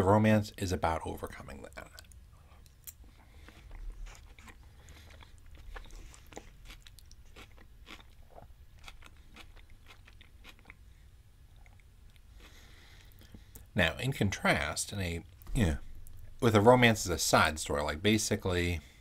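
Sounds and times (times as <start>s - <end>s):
person chewing food: 1.9s - 13.7s.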